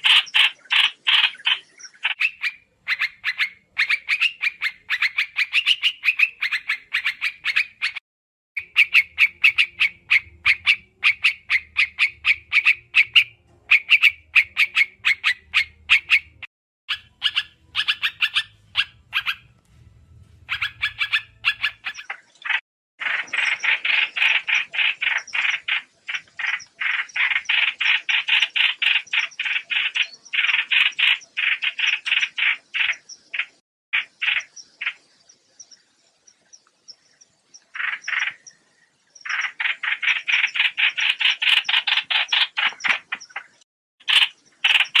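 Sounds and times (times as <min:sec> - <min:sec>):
short high bird chirps: 0:08.6 - 0:19.6, 0:20.2 - 0:33.1
faint low hum: 0:17.6 - 0:21.8.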